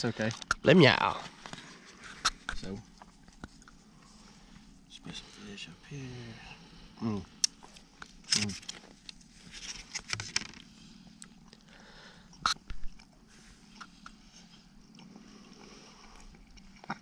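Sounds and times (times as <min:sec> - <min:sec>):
person chewing food: 0:01.4 - 0:04.8, 0:10.5 - 0:17.0.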